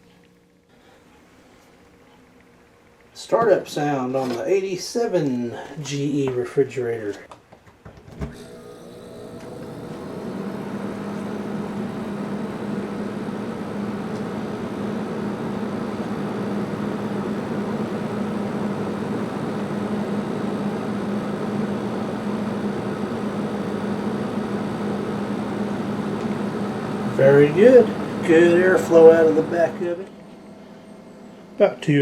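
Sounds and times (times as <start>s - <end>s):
refrigerator compressor hum: 8.2s - 32.0s
fan air rushing: 8.4s - 32.0s.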